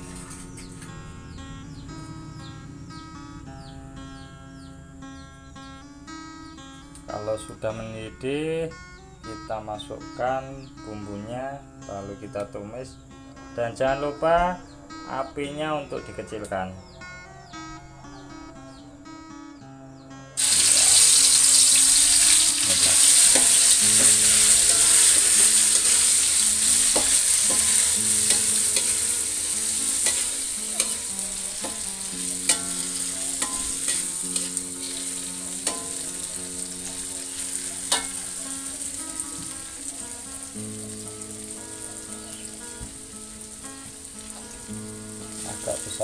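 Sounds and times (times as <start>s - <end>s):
metal spatula scraping a wok: 20.4s - 31.9s, 32.5s - 36.2s, 36.9s - 38.4s
paste sizzling in hot oil: 20.4s - 46.0s.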